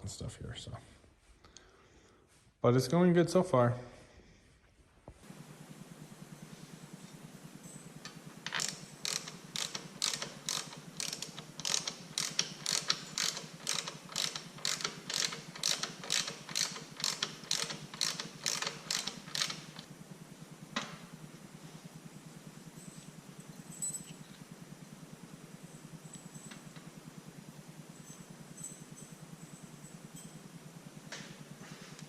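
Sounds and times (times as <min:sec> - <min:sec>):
ratchet wrench clicking: 0:08.0 - 0:19.9.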